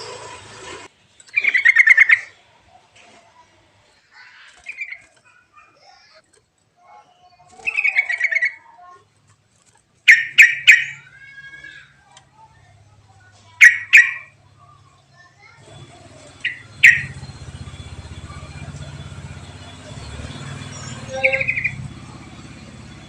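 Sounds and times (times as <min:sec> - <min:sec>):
songbird chirps and trills: 0:01.2 - 0:02.8, 0:03.8 - 0:23.0
loud sharp bird notes: 0:10.1 - 0:12.0, 0:13.5 - 0:23.0.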